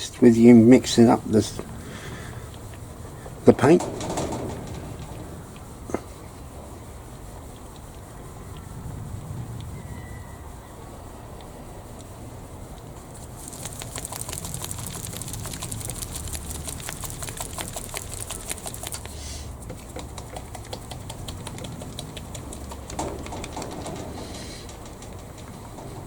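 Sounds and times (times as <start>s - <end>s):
paint bottle rattling when shaken: 13.1s - 25.8s.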